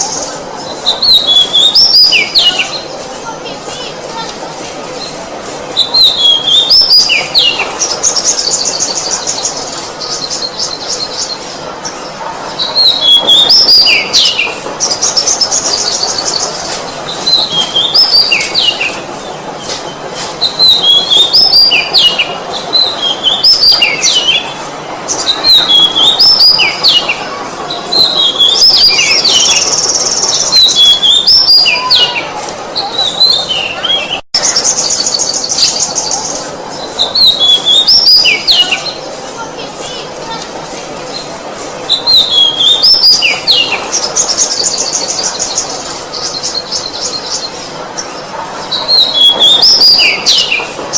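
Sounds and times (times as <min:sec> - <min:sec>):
bird singing whistled phrases: 0:00.9 - 0:02.8, 0:05.8 - 0:07.6, 0:20.4 - 0:24.5, 0:25.2 - 0:27.0, 0:37.1 - 0:39.0, 0:41.9 - 0:45.6, 0:48.8 - 0:50.6
rapid high bird trill: 0:05.8 - 0:41.3.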